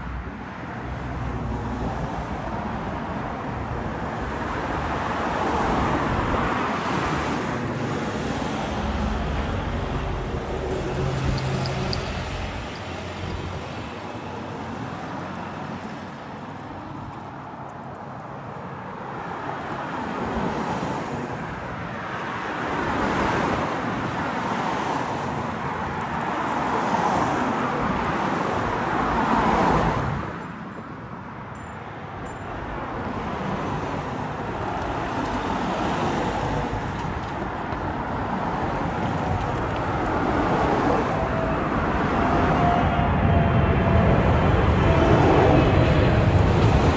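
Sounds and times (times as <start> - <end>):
jet airliner passing overhead: 37.8 - 46.9.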